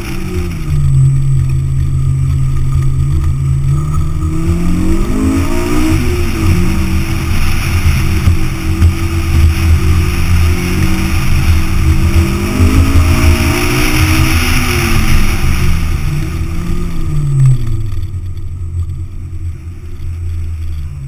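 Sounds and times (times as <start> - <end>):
sports car engine: 0.0 - 21.0
wind on microphone: 0.0 - 21.0.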